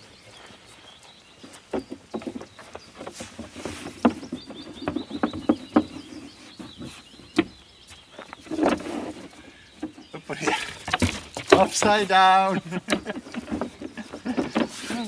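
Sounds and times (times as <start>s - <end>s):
small bird chirping: 0.0s - 15.0s
knocks and clatter: 9.8s - 15.0s.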